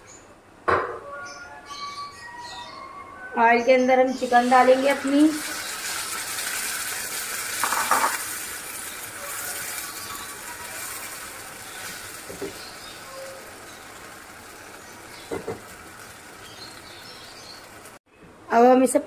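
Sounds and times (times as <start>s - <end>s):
chicken sizzling in hot oil: 4.2s - 18.0s.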